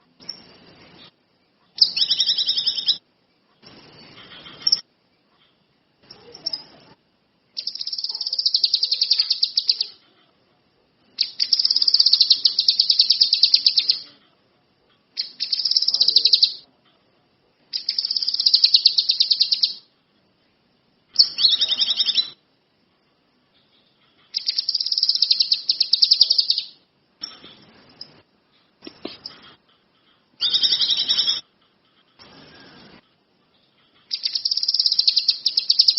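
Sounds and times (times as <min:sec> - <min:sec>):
songbird trilling: 0:01.8 - 0:03.0, 0:07.6 - 0:10.0, 0:11.2 - 0:14.1, 0:15.2 - 0:16.6, 0:17.7 - 0:19.9, 0:21.2 - 0:22.4, 0:24.3 - 0:26.8, 0:30.4 - 0:31.4, 0:34.1 - 0:35.9.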